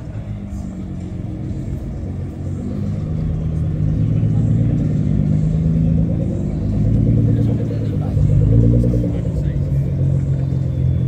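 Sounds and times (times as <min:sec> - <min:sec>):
car engine running at low revs: 0:00.0 - 0:11.0.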